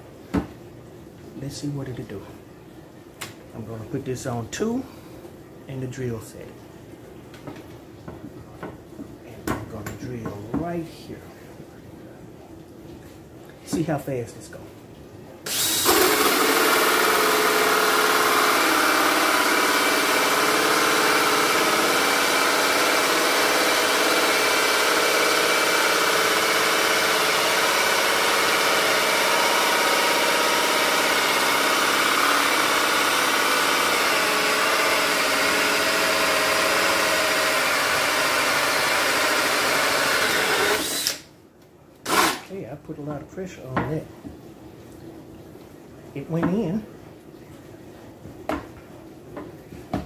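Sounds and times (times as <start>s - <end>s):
drill with hole saw cutting wood: 15.5s - 41.3s, 42.1s - 42.5s.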